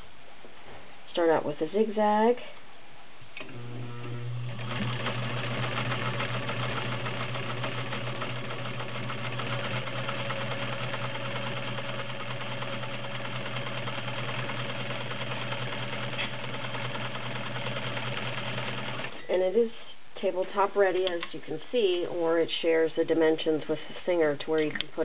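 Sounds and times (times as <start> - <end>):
sewing machine running: 3.5 - 19.3.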